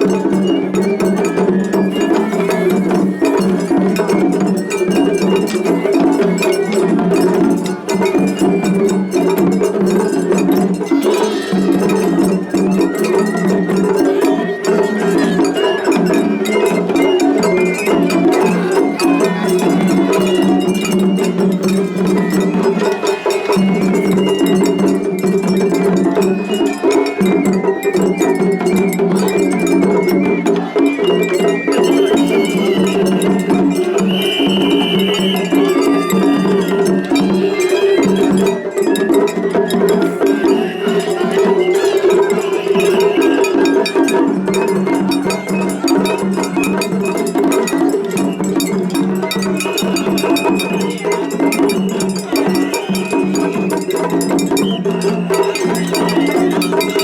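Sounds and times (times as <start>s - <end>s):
high flute phrases: 0.0s - 7.4s, 11.3s - 25.2s, 25.8s - 44.0s.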